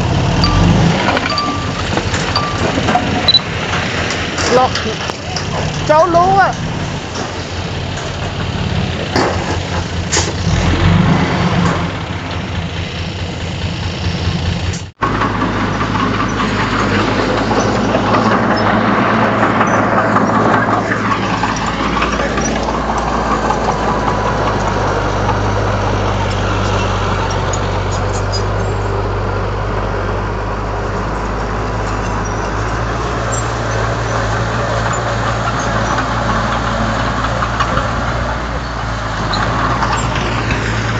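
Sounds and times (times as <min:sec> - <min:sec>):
diesel machinery engine running: 0:00.0 - 0:40.9.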